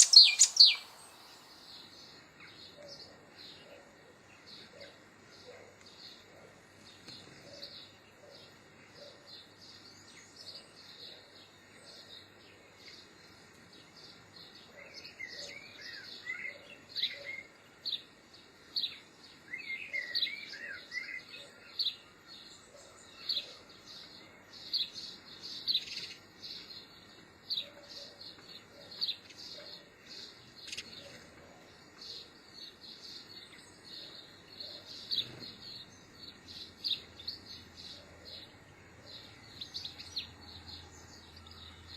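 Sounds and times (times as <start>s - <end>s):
low bird warbling: 0.0s - 1.3s
small birds chirping: 0.0s - 41.9s.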